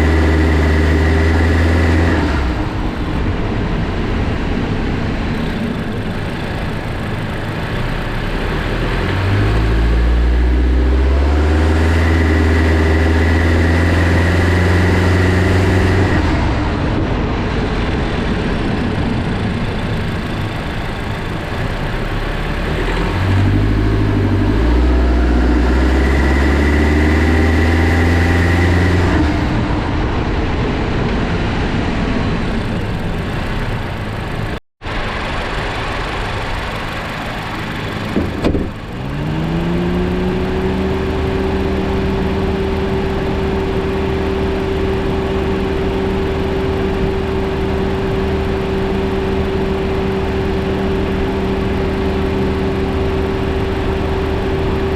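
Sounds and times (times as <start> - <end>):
car engine accelerating: 0.0 - 54.9
high steady whine: 0.0 - 54.9.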